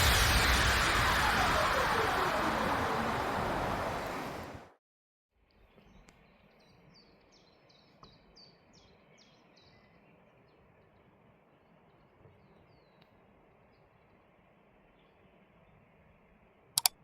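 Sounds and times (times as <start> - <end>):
faint outdoor background: 0.0 - 17.0
vehicle passing: 1.0 - 4.7
small bird singing: 5.5 - 14.1.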